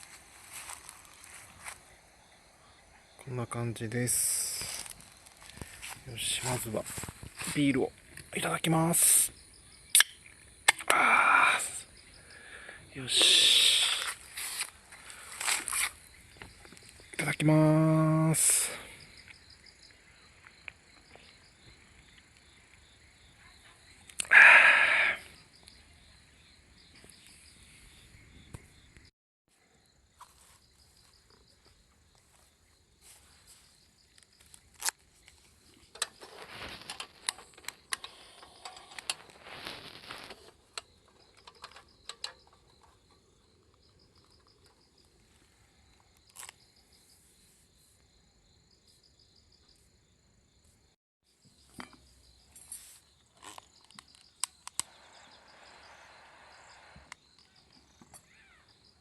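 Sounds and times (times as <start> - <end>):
crickets and insects chirping: 0.0 - 59.0.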